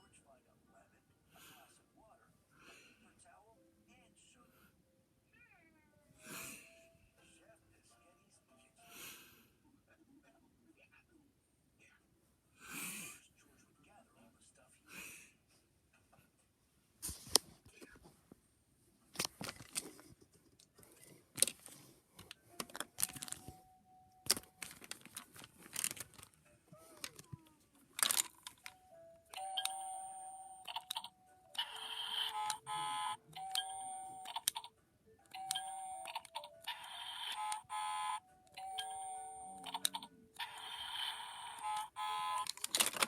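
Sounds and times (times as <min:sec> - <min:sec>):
plastic toy clicks and knocks: 0:21.4 - 0:23.5, 0:28.0 - 0:28.8, 0:30.7 - 0:32.7, 0:33.4 - 0:34.7, 0:41.6 - 0:43.0
electronic toy beeps and chimes: 0:28.6 - 0:34.7, 0:35.3 - 0:42.6.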